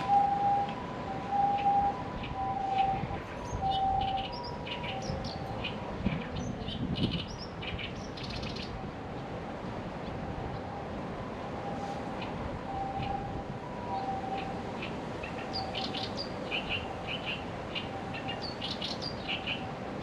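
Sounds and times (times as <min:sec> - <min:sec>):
two-tone ambulance siren: 0:00.0 - 0:06.6, 0:08.7 - 0:20.0
small birds chirping: 0:01.5 - 0:08.8, 0:14.4 - 0:19.7.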